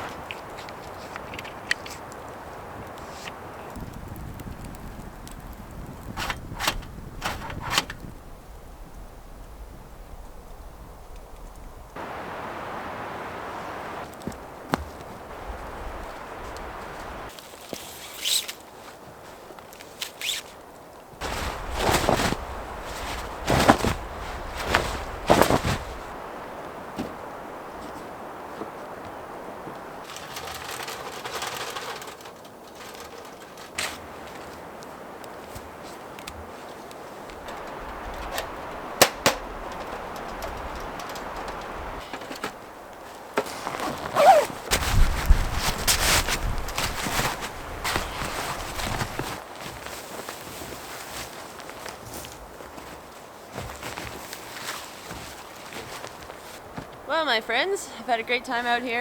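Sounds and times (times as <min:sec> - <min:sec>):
outdoor hiss: 0:00.0 - 0:52.7
footsteps crunching in snow: 0:12.0 - 0:30.2, 0:33.9 - 0:57.1
faint clicks: 0:36.1 - 0:43.0
sharp cracks: 0:37.3 - 0:42.6.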